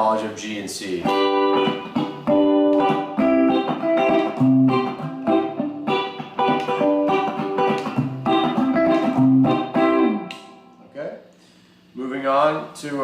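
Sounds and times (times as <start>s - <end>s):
electric guitar lead lines: 1.0s - 10.9s.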